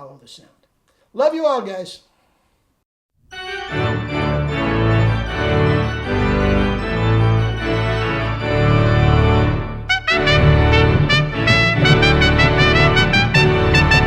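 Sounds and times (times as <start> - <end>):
organ chords with bass: 3.3 - 14.0.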